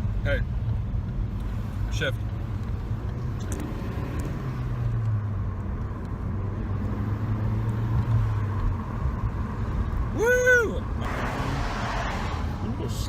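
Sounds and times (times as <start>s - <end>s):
road noise: 0.0s - 13.0s
car engine accelerating: 2.4s - 10.1s, 10.8s - 13.0s.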